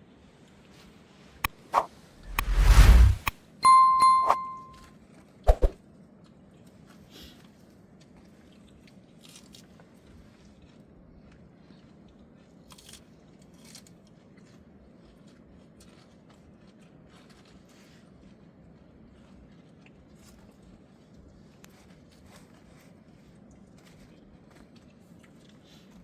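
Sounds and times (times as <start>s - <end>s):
chewing and crunching: 8.1s - 26.0s.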